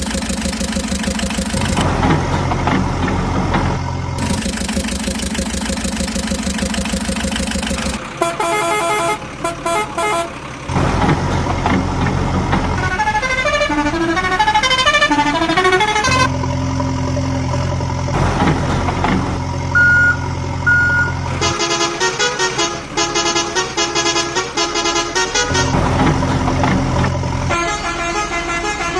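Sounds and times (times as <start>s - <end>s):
toy truck engine running: 0.0s - 28.9s
musical horn tunes: 12.8s - 16.3s, 20.8s - 25.8s, 27.5s - 28.9s
short beeps: 19.7s - 21.2s.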